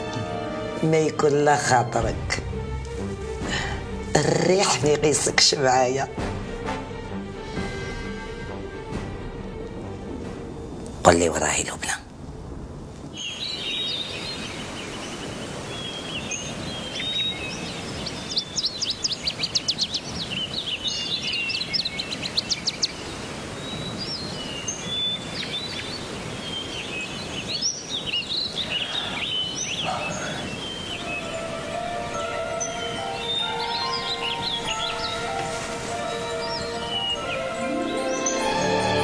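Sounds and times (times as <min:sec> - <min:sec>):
steady outdoor hiss: 0:00.0 - 0:39.0
songbirds chirping and trilling: 0:13.0 - 0:39.0.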